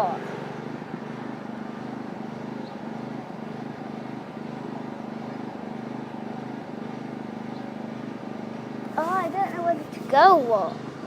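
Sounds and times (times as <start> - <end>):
tractor engine idling: 8.9 - 10.7.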